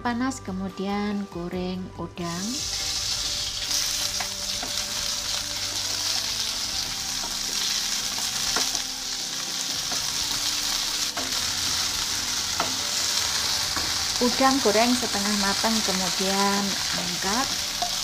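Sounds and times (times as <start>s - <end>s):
shrimp sizzling in oil: 2.4s - 18.0s.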